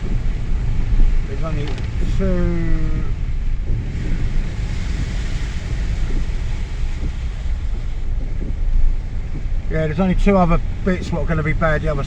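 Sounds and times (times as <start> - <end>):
water rushing hiss: 0.0 - 9.2
car engine and road rumble: 0.0 - 12.0.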